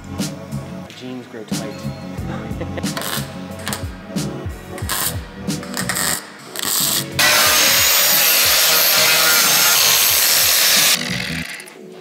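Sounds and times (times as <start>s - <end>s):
background music with a beat: 0.0s - 9.0s
power grinder grinding metal: 4.8s - 11.8s.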